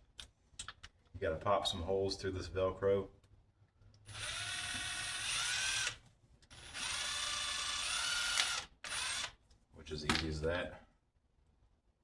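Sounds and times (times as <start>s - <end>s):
power drill boring through plastic: 4.1s - 9.4s.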